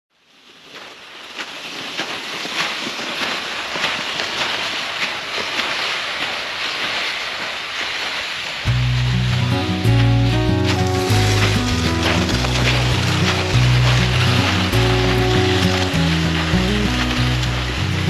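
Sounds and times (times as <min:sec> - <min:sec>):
campfire crackling and popping: 0:00.7 - 0:18.0
music: 0:08.7 - 0:18.0.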